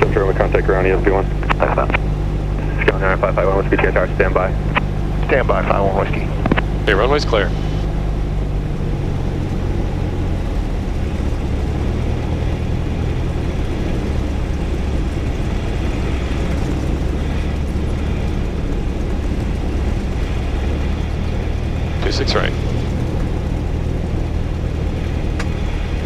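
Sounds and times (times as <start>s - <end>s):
aircraft piston engine humming: 0.0s - 26.0s.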